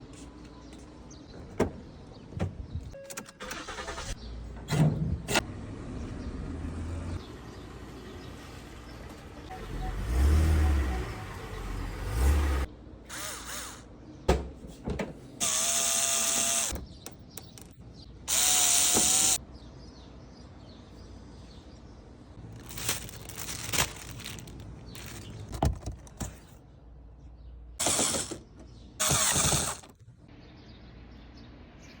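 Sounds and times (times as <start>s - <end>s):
power tool whirring with whine: 15.4s - 16.8s, 18.3s - 19.4s, 27.8s - 28.4s, 29.0s - 29.9s.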